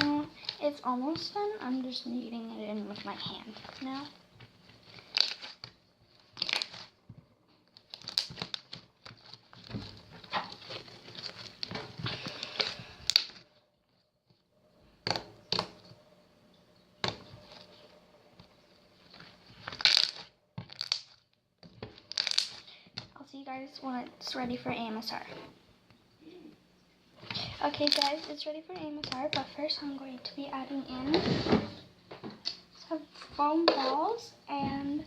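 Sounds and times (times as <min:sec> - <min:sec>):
slime crackling and squelching: 0:00.0 - 0:13.5, 0:17.0 - 0:23.2, 0:27.2 - 0:31.4.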